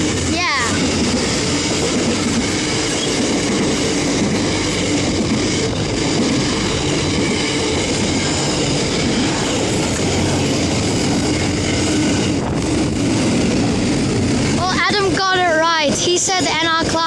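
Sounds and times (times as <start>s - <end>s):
train wheels rolling on rail: 0.0s - 17.0s.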